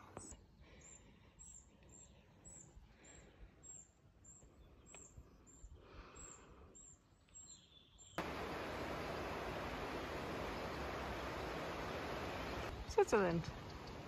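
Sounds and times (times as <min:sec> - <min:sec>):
steady rush of noise: 0:08.2 - 0:12.7.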